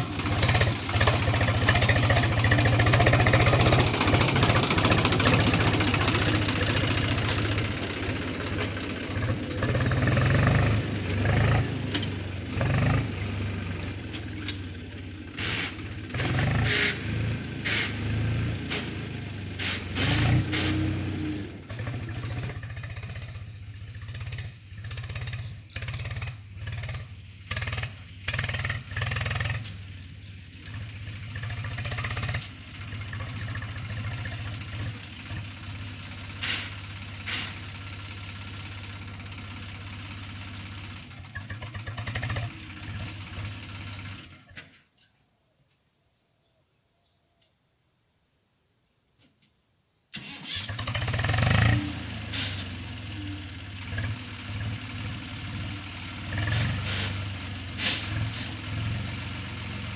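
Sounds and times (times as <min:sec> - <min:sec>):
tractor diesel engine running: 0:00.0 - 0:44.7, 0:50.2 - 0:59.9
engine starting up: 0:15.3 - 0:18.1, 0:19.6 - 0:21.0, 0:36.3 - 0:37.8, 0:41.1 - 0:44.8, 0:50.1 - 0:54.7, 0:56.3 - 0:58.7.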